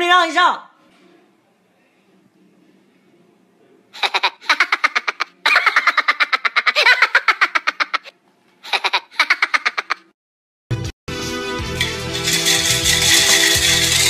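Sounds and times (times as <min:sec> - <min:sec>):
high-pitched laughter: 0:04.0 - 0:10.1.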